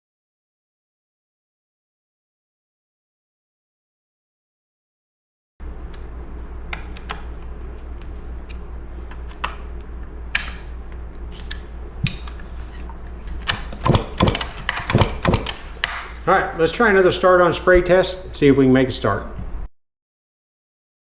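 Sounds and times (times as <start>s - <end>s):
steady low hum: 5.6s - 19.7s
tools clicking on workbench: 13.4s - 16.2s.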